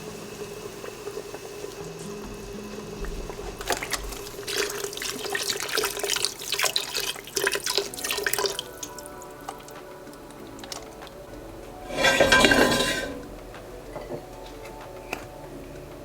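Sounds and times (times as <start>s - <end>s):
water splashing into a sink: 0.1s - 8.9s.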